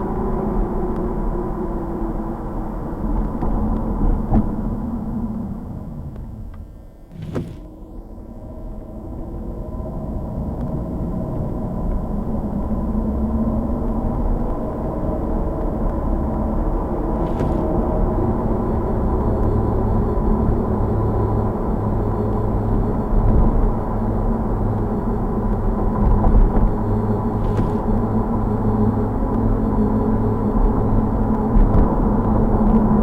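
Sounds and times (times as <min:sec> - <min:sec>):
car engine and road noise: 0:05.2 - 0:07.9, 0:11.1 - 0:20.8, 0:25.2 - 0:31.0.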